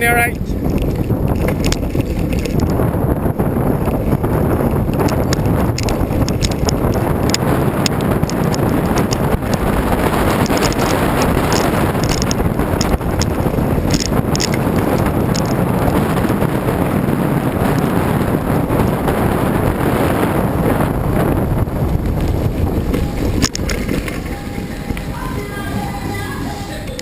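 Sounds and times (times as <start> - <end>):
wind roaring over microphone: 0.0 - 27.0.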